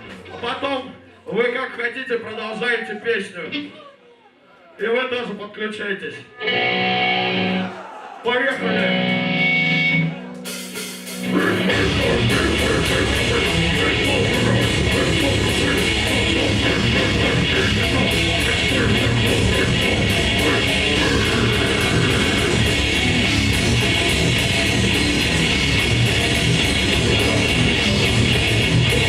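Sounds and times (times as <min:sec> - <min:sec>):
distorted guitars and bass: 0:00.0 - 0:00.9, 0:06.4 - 0:07.7, 0:08.6 - 0:29.0
fast drumming: 0:10.5 - 0:29.0.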